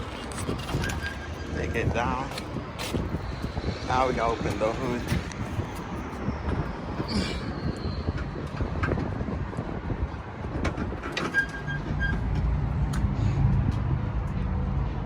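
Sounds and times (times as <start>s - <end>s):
metal clanks and rattles: 0.0s - 3.6s, 7.4s - 13.0s.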